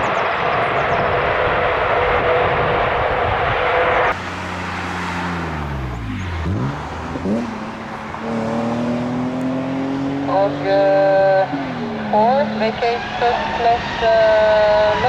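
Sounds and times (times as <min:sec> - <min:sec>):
jet engine noise: 0:00.0 - 0:08.8
vehicle engine: 0:00.0 - 0:15.0.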